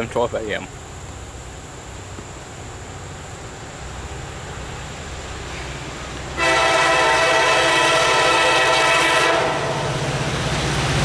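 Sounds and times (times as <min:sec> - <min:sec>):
freight train rumble: 0:00.0 - 0:11.0
locomotive horn: 0:06.4 - 0:10.0.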